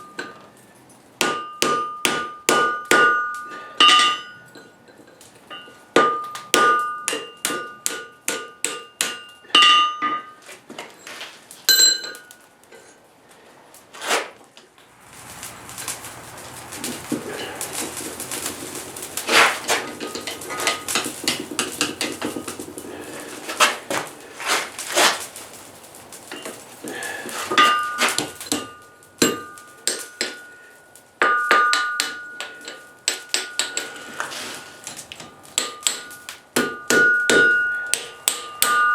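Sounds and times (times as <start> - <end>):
hammer striking anvil: 1.2 - 4.4, 5.5 - 10.3, 27.5 - 30.6, 31.2 - 34.0, 35.6 - 38.9
steady rushing noise: 14.8 - 28.8
knocks and clanks: 15.2 - 25.2.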